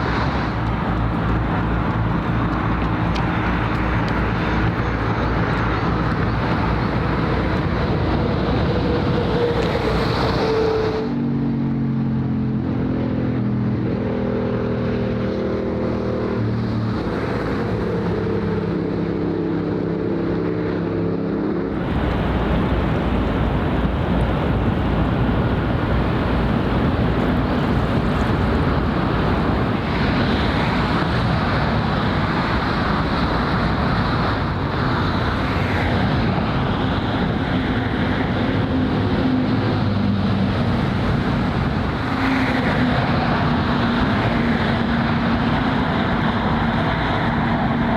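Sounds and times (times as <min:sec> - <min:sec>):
wind and water rushing: 0:00.0 - 0:11.4, 0:21.7 - 0:47.9
engine drone: 0:00.0 - 0:47.9
motor traffic: 0:00.0 - 0:47.9.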